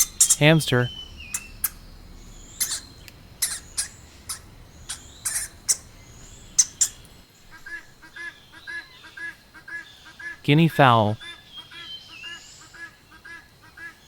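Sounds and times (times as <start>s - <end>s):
hamster squeaking and clicking: 0.0s - 0.5s, 1.2s - 1.8s, 2.6s - 5.9s, 6.5s - 7.1s.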